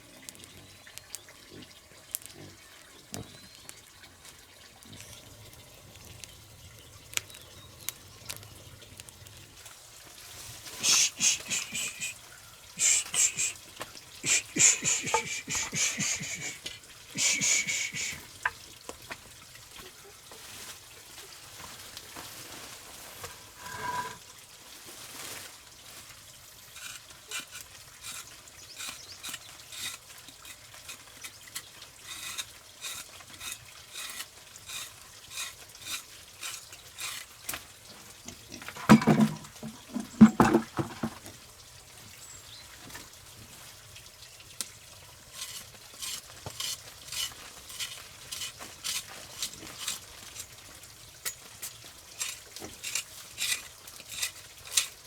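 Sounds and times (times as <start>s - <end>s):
food sizzling in a pan: 8.9s - 55.0s
stirring scraping clicks: 10.8s - 12.2s, 12.8s - 19.2s, 26.8s - 37.7s, 38.3s - 41.3s, 45.3s - 50.6s, 51.2s - 55.0s.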